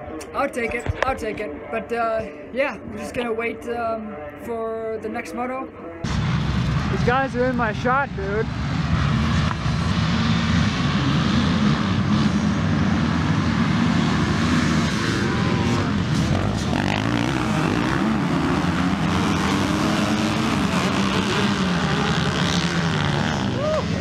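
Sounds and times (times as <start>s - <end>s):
dirt bike engines revving: 6.1s - 24.0s.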